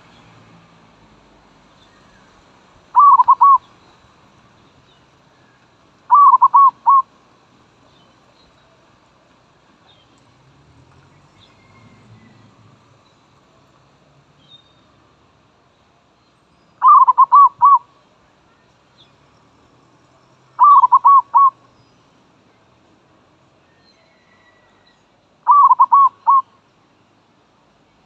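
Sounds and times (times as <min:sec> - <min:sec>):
dove cooing: 0:02.9 - 0:03.7, 0:06.1 - 0:07.1, 0:16.8 - 0:17.9, 0:20.6 - 0:21.6, 0:25.4 - 0:26.5.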